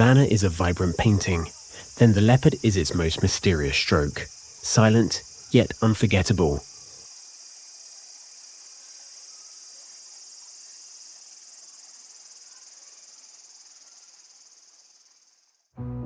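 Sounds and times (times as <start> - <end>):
high-pitched insect chorus: 0.0 - 15.8
music: 15.7 - 16.0.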